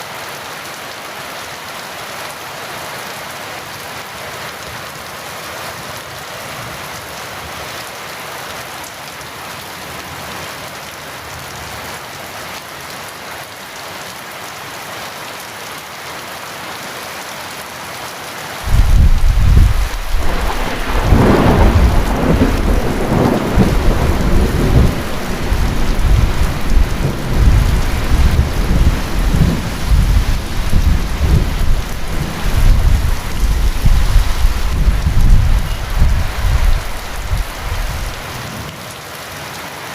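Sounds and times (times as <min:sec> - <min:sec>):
heavy rain falling: 0:00.0 - 0:39.9
thunder rumbling: 0:18.6 - 0:38.4.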